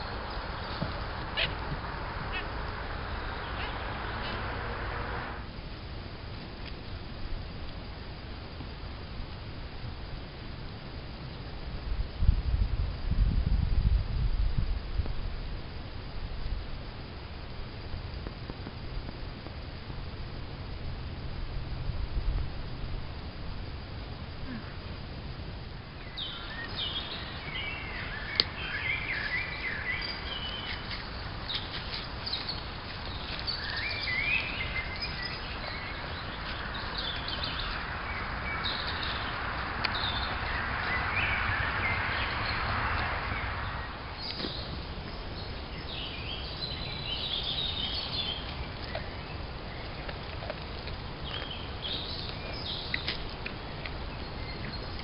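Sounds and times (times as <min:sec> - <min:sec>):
birds chirping: 0:00.0 - 0:05.4, 0:26.0 - 0:55.0
soft rushing noise: 0:00.0 - 0:05.7, 0:25.5 - 0:46.4
steady outdoor hiss: 0:00.0 - 0:55.0.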